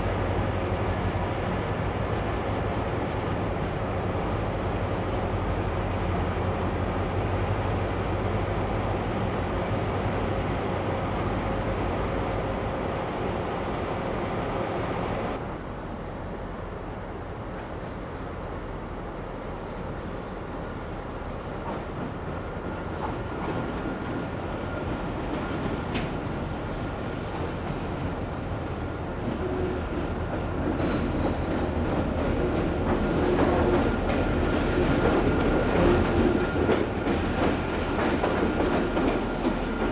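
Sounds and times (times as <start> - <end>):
train wheels clattering on rails: 17.4 - 39.9.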